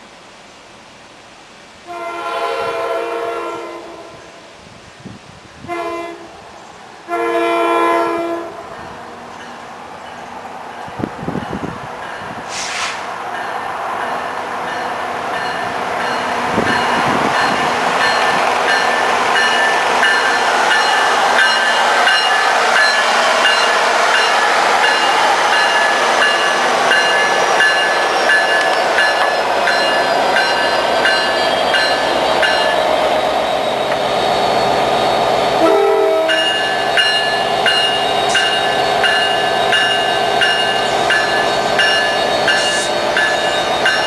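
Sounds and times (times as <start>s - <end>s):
passenger train rumbling past: 0.2s - 44.0s
train wheels clicking: 11.4s - 33.0s, 36.2s - 44.0s.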